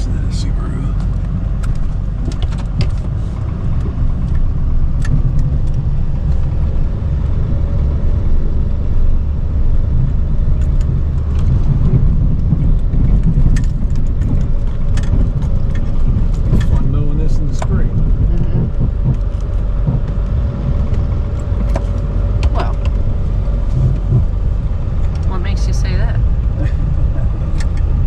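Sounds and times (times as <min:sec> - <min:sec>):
diesel engine rumbling under load: 0:00.0 - 0:28.0
sharp clicks and knocks: 0:01.0 - 0:06.6, 0:10.1 - 0:24.4.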